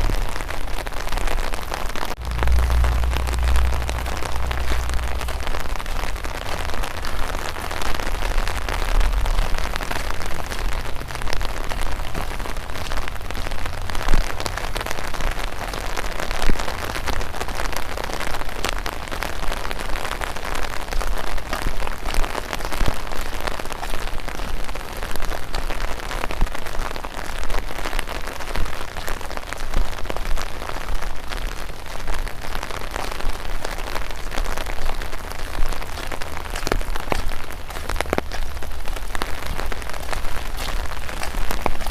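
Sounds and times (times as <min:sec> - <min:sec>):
light rain falling: 0:00.0 - 0:41.9
low rumble: 0:02.1 - 0:17.9.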